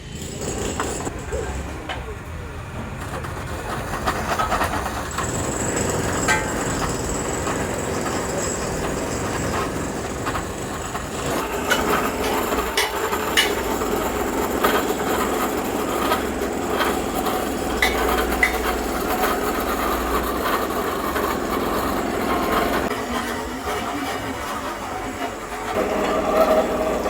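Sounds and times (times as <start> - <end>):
workshop machinery running: 0.0 - 27.0
sharp metal clanks: 11.3 - 15.4, 17.7 - 19.7.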